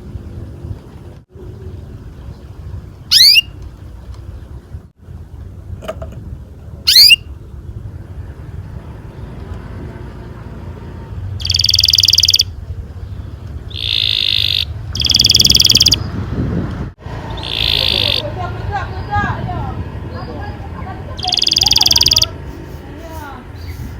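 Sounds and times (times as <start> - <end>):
canary singing: 3.1 - 3.6, 6.9 - 7.3, 11.4 - 16.2, 17.1 - 23.9.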